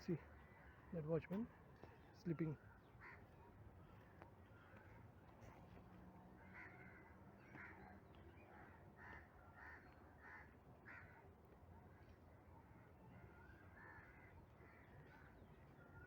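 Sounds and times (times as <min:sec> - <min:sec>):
faint crow cawing: 0:02.9 - 0:03.3, 0:06.4 - 0:07.8, 0:08.6 - 0:11.2, 0:13.6 - 0:15.4.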